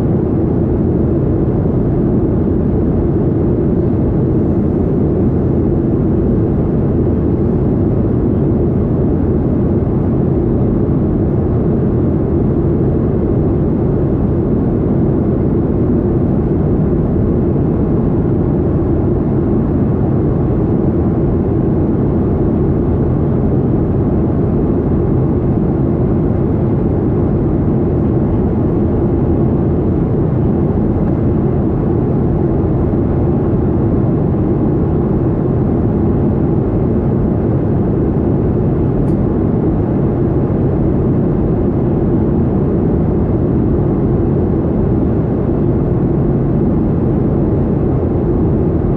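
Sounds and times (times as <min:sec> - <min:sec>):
jet engine roar in cabin: 0:00.0 - 0:48.9.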